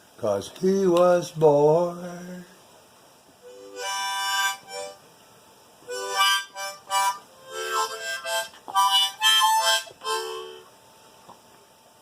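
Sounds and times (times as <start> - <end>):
harmonica playing: 3.4 - 5.0, 5.8 - 10.7.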